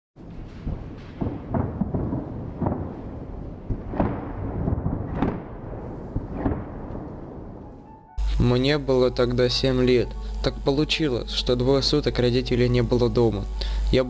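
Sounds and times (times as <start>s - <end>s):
thunder rumbling and cracking: 0.2s - 7.9s.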